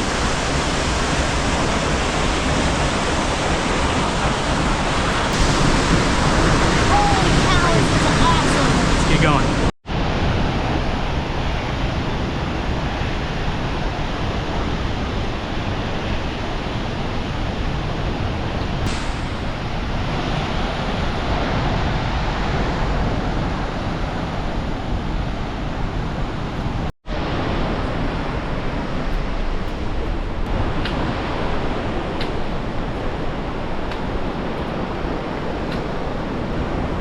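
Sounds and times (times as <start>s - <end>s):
waterfall rushing: 0.0s - 10.8s, 18.8s - 24.6s.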